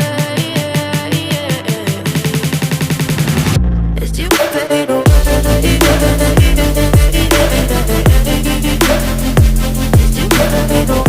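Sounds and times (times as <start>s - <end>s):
electronic music with heavy beat: 0.0s - 11.0s
sliding deep bass hits: 3.0s - 4.4s, 5.1s - 11.0s
held low bass note: 5.1s - 10.3s.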